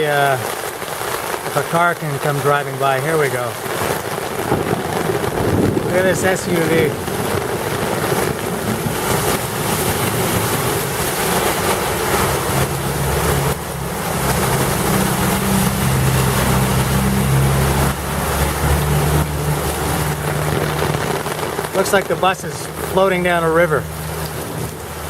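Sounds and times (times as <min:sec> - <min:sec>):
heavy rain pouring: 0:00.0 - 0:25.0
tyres sloshing through water: 0:00.0 - 0:25.0
bus engine drone: 0:03.9 - 0:25.0.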